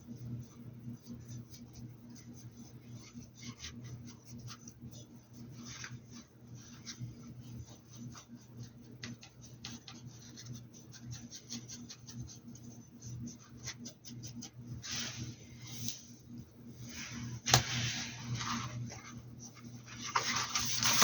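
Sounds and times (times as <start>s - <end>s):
low steady hum: 0.0s - 21.0s
paintbrush scratching on hat: 1.0s - 16.2s.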